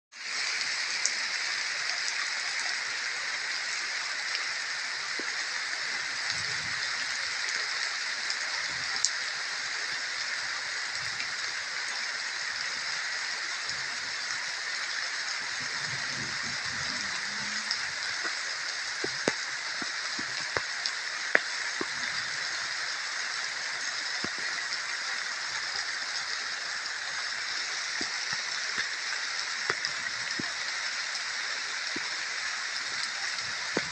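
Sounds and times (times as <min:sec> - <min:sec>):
steady rain hiss: 0:00.2 - 0:33.9
rain drop impacts: 0:15.4 - 0:26.0, 0:26.9 - 0:33.9.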